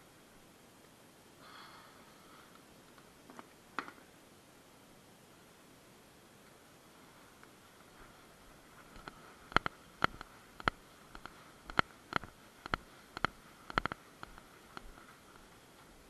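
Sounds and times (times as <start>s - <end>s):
faint steady hiss: 0.0s - 16.0s
sharp irregular clicks: 7.9s - 16.0s.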